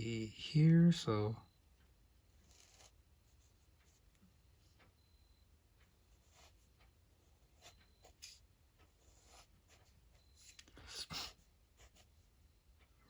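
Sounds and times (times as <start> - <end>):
pen scratching on paper: 2.4 - 4.0, 6.1 - 6.8, 7.4 - 12.1.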